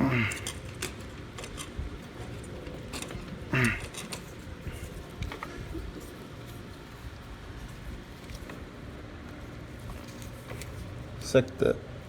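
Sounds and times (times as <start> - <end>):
clicks of engine parts and tools: 0.0 - 5.6.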